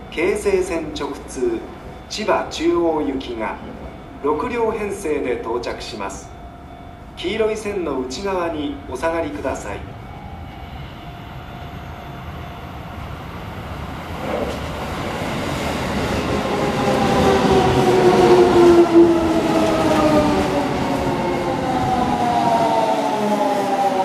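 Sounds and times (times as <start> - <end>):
electric train rumble: 0.0 - 24.0.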